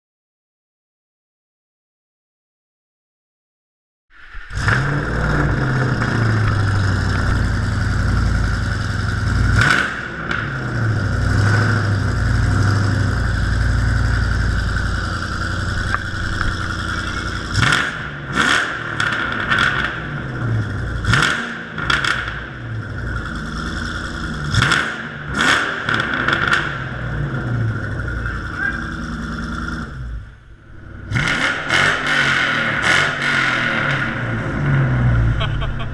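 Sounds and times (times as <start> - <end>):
car engine idling: 4.3 - 25.3, 26.1 - 31.2
car engine revving in throttle blips: 4.5 - 35.9.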